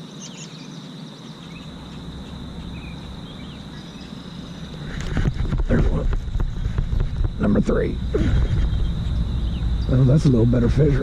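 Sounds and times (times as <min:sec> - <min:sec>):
bird chirps: 0:00.0 - 0:05.1, 0:08.0 - 0:11.0
high-pitched insect buzz: 0:00.0 - 0:11.0
wind and water rumble: 0:01.4 - 0:11.0.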